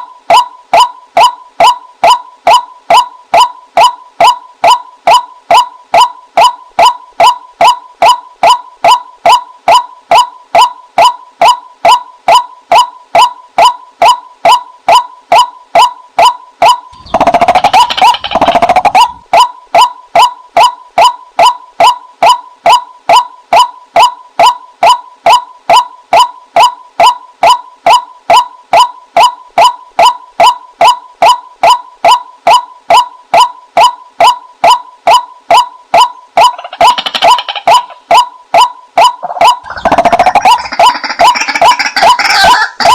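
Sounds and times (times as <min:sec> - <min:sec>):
harsh bird call: 0:16.9 - 0:19.2
waterhen calling: 0:17.0 - 0:19.2, 0:39.2 - 0:42.9.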